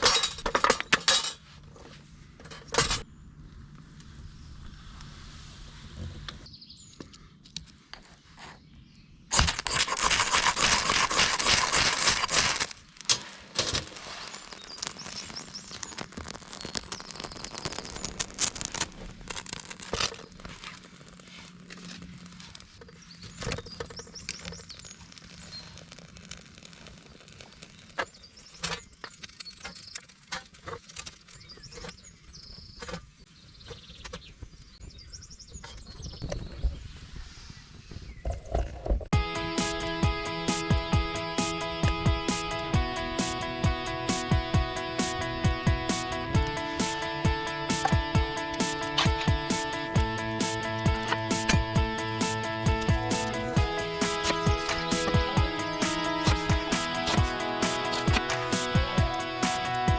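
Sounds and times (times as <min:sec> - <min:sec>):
crackling with clicks: 0:09.3 - 0:31.9, 0:39.2 - 0:59.9
food sizzling on a hot pan: 0:10.6 - 0:18.8.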